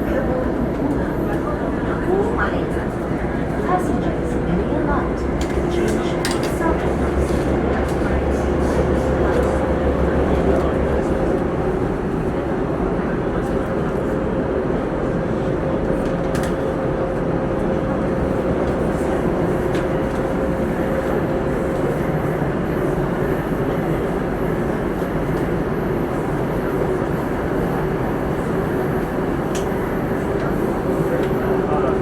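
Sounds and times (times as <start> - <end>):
train rumbling in tunnel: 0.0 - 32.0.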